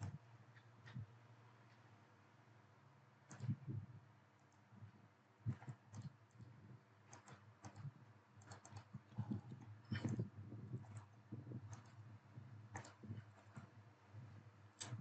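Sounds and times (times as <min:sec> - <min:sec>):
low steady hum: 0:00.0 - 0:15.0
computer keyboard and mouse clicks: 0:03.2 - 0:03.8, 0:05.5 - 0:12.1, 0:12.7 - 0:13.8, 0:14.8 - 0:15.0.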